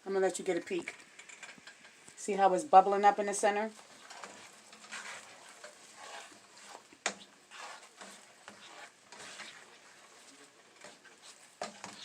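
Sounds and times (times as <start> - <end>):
syrup bubbling in a pan: 2.8 - 12.0.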